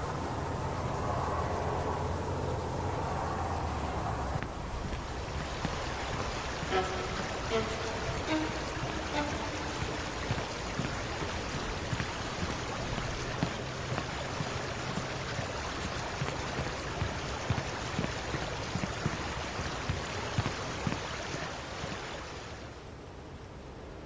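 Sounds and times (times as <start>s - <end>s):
steady rushing noise: 0.0s - 22.2s
footsteps on a footbridge: 4.2s - 21.6s.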